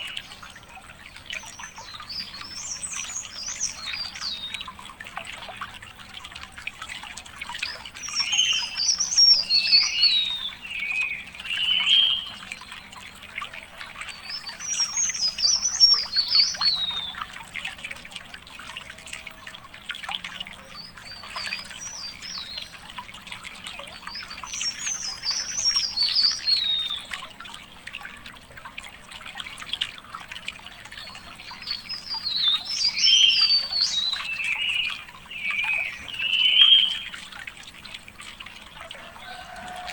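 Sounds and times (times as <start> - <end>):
songbird warbling: 0.0 - 4.7, 7.6 - 12.9, 14.0 - 17.3, 23.8 - 27.2, 30.9 - 37.4
water trickling: 0.0 - 39.9.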